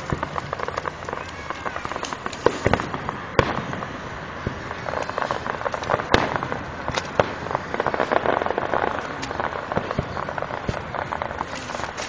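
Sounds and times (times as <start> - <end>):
firework crackling: 0.0 - 12.0
firework shells bursting: 0.0 - 12.0.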